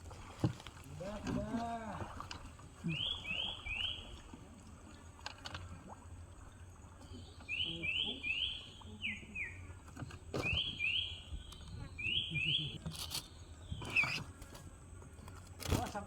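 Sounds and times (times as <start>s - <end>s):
bird whistling calls: 7.5s - 9.6s, 10.4s - 12.8s, 13.8s - 14.2s.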